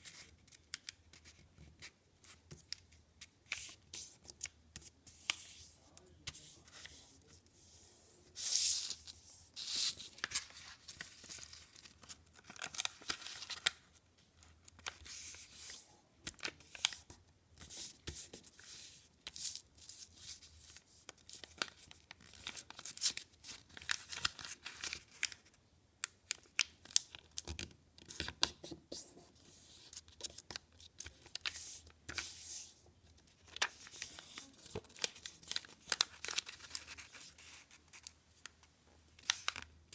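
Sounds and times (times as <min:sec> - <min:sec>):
paper rustling and crackling: 0:08.4 - 0:14.0, 0:33.3 - 0:38.5, 0:39.2 - 0:39.7.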